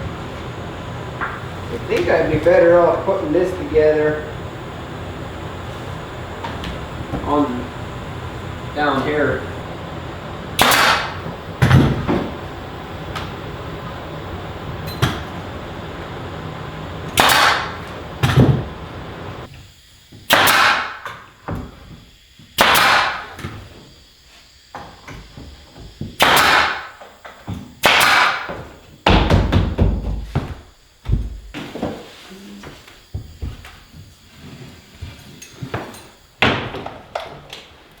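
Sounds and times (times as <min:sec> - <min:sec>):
steady background noise: 0:00.0 - 0:19.5
power tool bursts: 0:00.0 - 0:29.4.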